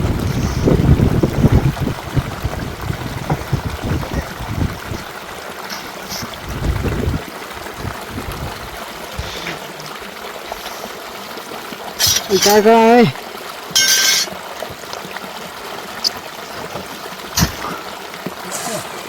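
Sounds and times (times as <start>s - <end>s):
wind rumbling on microphone: 0.0s - 5.2s, 6.1s - 9.4s
water running like a stream: 0.0s - 19.0s.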